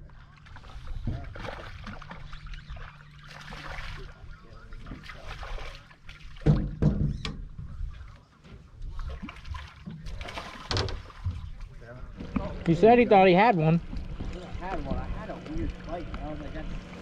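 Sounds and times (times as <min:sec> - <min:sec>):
low steady hum: 0:00.0 - 0:17.0
water lapping against boat hull: 0:00.0 - 0:17.0
loud knocks: 0:06.4 - 0:07.1.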